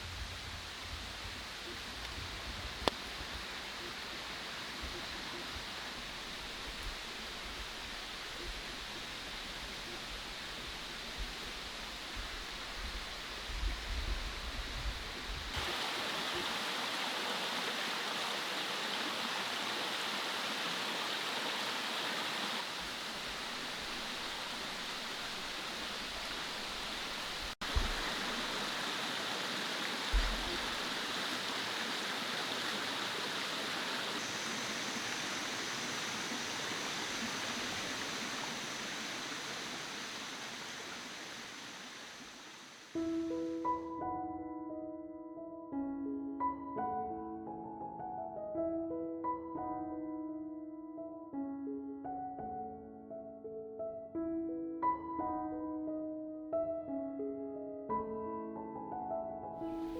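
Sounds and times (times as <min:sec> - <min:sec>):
stream flowing over rocks: 0:15.5 - 0:43.0.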